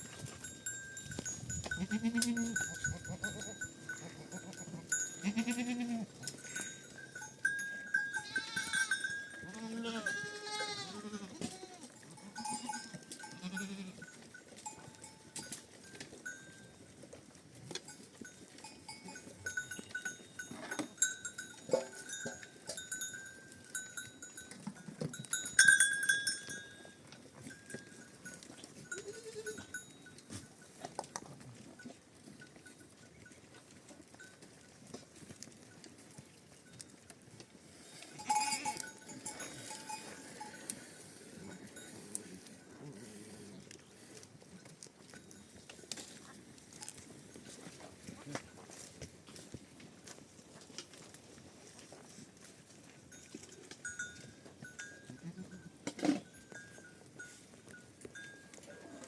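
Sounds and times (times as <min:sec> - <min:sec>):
animal bells clinking: 0:00.0 - 0:59.0
sheep and goats bleating: 0:01.2 - 0:15.5, 0:23.8 - 0:30.6, 0:37.8 - 0:43.5, 0:54.9 - 0:56.2.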